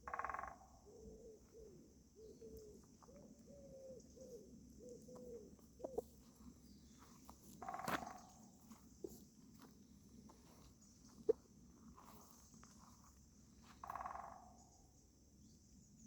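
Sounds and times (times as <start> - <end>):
pigeon cooing: 0.8 - 6.3.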